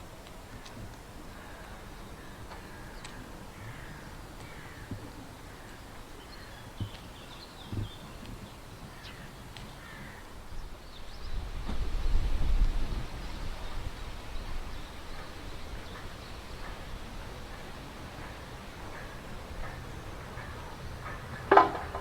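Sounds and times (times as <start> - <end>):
outdoor background noise: 0.0 - 22.0
soft knocks: 19.6 - 22.0.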